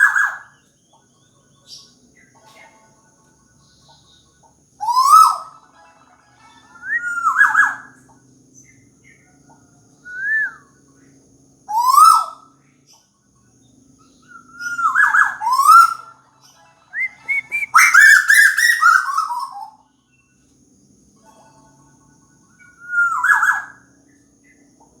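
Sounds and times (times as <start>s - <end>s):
bird whistling rising notes: 4.8s - 5.6s, 6.7s - 8.0s, 10.0s - 10.8s, 11.7s - 12.5s, 14.2s - 16.1s, 16.9s - 19.8s, 22.6s - 23.8s.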